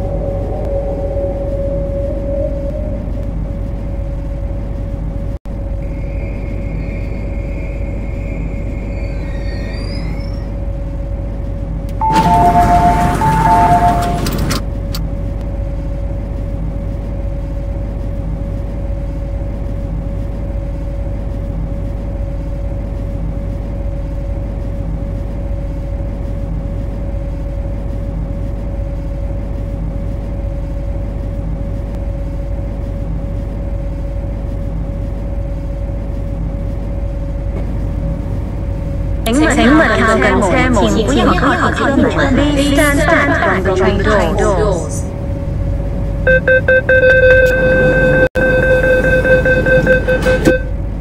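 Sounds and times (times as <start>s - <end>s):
constant high tone: 0.0s - 4.9s, 5.7s - 10.9s, 11.9s - 14.6s
train electrical hum and rumble: 0.0s - 51.0s.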